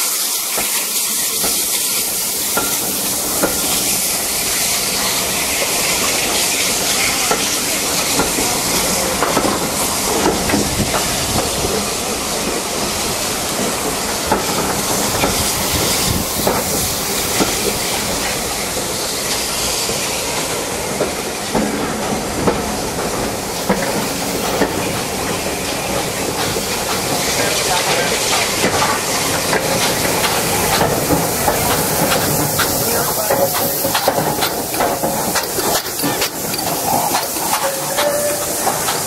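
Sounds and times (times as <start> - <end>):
steam hissing: 0.0 - 39.0
train wheels clicking over rail joints: 0.0 - 39.0.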